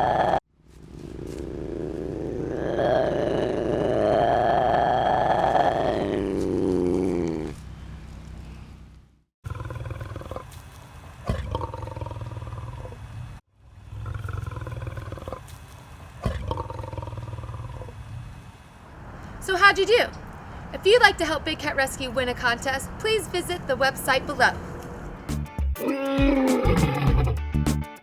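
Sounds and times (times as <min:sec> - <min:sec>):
quiet animal sounds: 0:09.5 - 0:13.1, 0:13.9 - 0:18.0
big cat call: 0:18.9 - 0:27.4.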